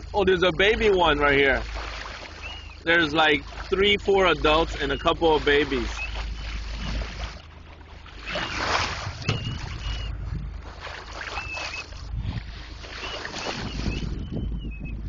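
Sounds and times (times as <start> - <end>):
water splashing along boat hull: 0.0 - 15.0
wind on microphone: 8.2 - 15.0.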